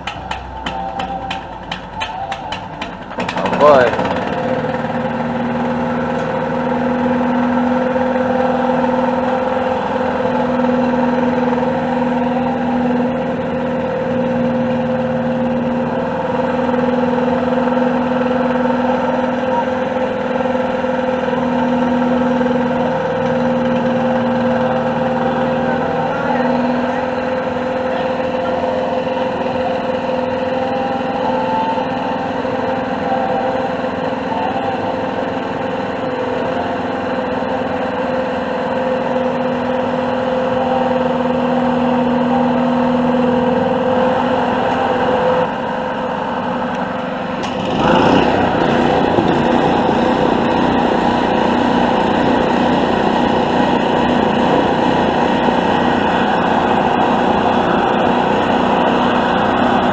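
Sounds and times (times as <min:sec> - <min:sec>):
small gasoline mower engine running: 0:00.0 - 0:59.9.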